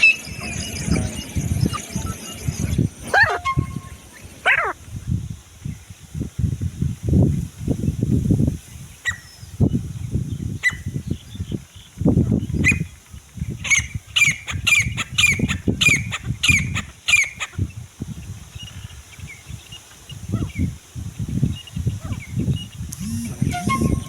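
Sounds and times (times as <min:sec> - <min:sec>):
francolin shrill calls: 0:00.0 - 0:04.8, 0:23.1 - 0:24.0
low rumbling bursts: 0:00.0 - 0:05.3.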